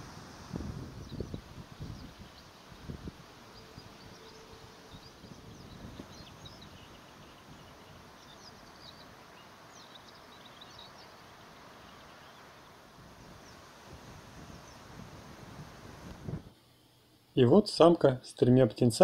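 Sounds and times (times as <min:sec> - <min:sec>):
steady outdoor hiss: 0:00.0 - 0:19.0
small birds chirping: 0:00.8 - 0:13.8, 0:14.4 - 0:15.0.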